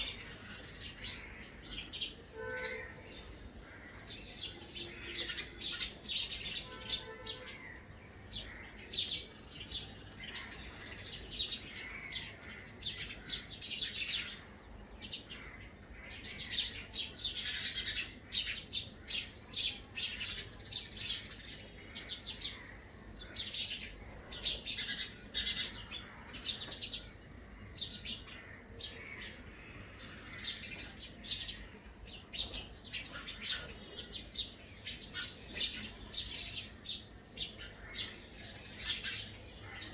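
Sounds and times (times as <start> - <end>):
small bird chirping: 0.0 - 3.3.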